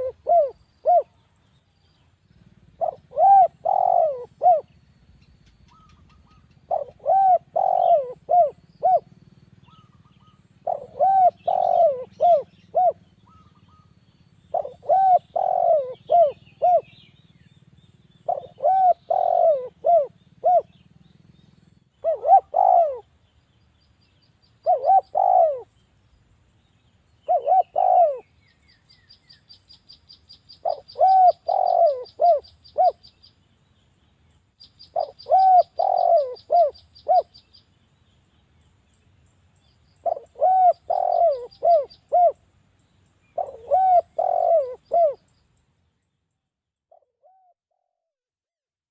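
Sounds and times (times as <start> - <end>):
dove cooing: 0.0 - 1.2, 2.4 - 4.8, 5.5 - 17.2, 18.2 - 20.9, 22.0 - 23.2, 24.6 - 25.7, 27.2 - 28.4, 30.5 - 33.2, 34.8 - 37.5, 40.0 - 42.4, 43.3 - 45.3, 46.9 - 47.9.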